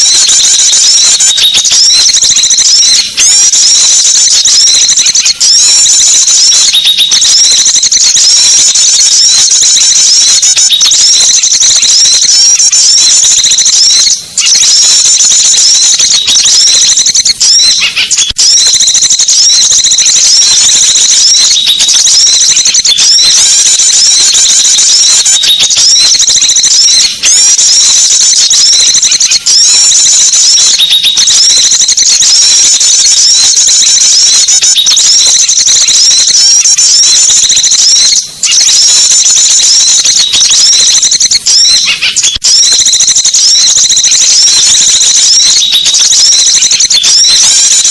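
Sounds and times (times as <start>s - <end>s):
songbirds chirping and twittering: 0.0s - 18.4s, 20.0s - 26.1s, 41.7s - 42.4s.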